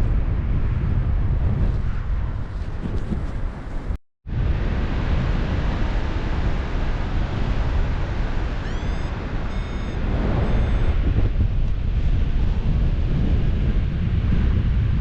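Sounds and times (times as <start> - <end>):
wind rushing over microphone: 0.0 - 15.0
short electronic beeps: 8.6 - 11.0.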